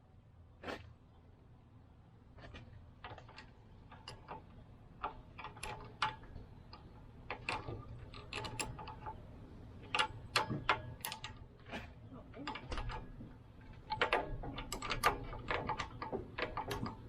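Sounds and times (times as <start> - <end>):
wrench clicking on metal nuts: 3.1 - 11.4, 12.5 - 17.0.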